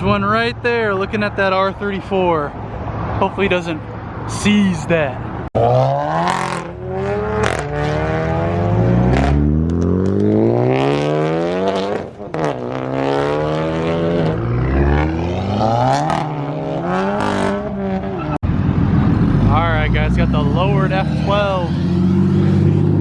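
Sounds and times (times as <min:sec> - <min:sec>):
car engine accelerating: 0:05.6 - 0:23.0.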